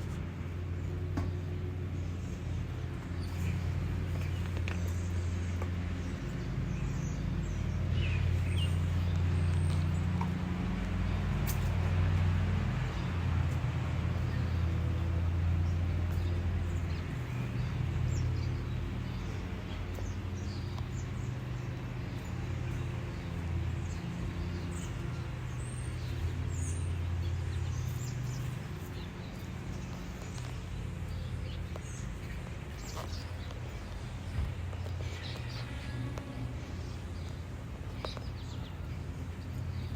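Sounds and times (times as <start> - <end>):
low mechanical hum: 0.0 - 39.9.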